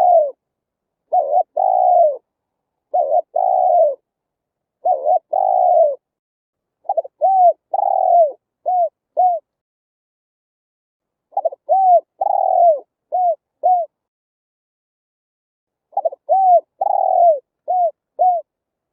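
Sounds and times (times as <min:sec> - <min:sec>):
dove cooing: 0:00.0 - 0:00.4, 0:01.1 - 0:02.3, 0:02.9 - 0:04.1, 0:04.8 - 0:06.0, 0:06.8 - 0:09.5, 0:11.3 - 0:14.0, 0:15.9 - 0:18.5.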